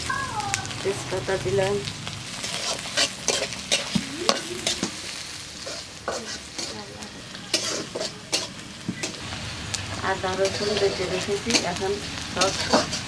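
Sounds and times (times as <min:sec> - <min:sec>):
vegetables frying in oil: 0:00.0 - 0:13.0
steel spatula scraping pan: 0:02.4 - 0:05.0, 0:05.6 - 0:06.8, 0:07.5 - 0:09.2, 0:10.1 - 0:13.0.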